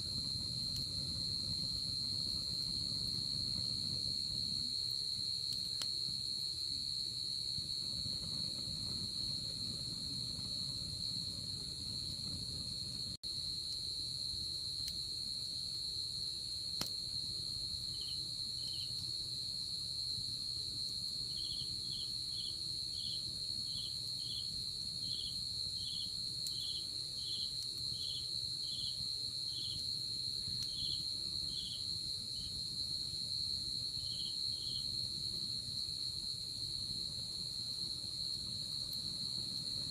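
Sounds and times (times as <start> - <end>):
campfire burning: 0.0 - 39.9
fire crackles: 0.0 - 39.9
insect chirping in pulses: 30.4 - 35.1.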